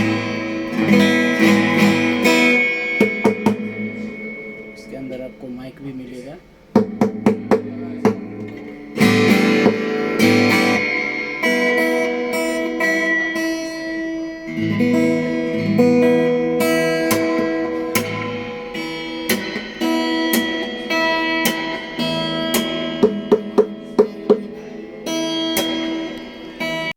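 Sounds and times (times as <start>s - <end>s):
acoustic guitar strumming and picking: 0.0s - 26.9s.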